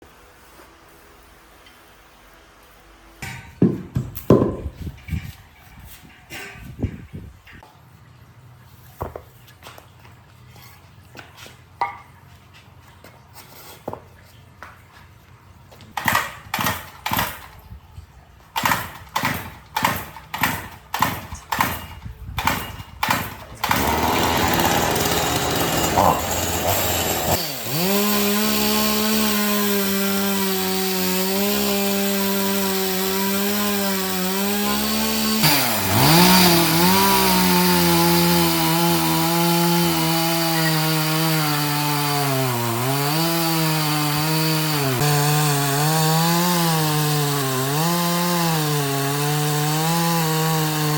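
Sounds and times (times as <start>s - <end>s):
chainsaw cutting wood: 3.2s - 5.1s, 15.9s - 17.7s, 18.5s - 50.9s.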